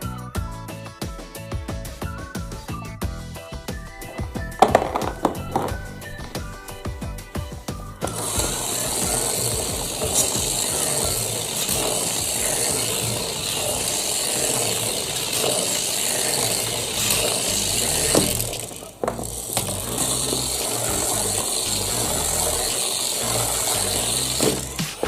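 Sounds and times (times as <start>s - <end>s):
mechanical clicking and rattling: 8.0s - 25.0s.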